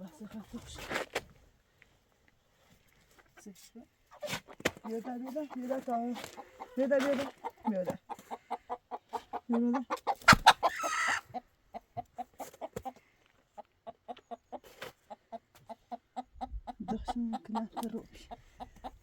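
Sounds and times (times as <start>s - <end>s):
chickens clucking: 2.6s - 19.0s
chicken squawk: 4.1s - 5.6s, 6.2s - 12.9s.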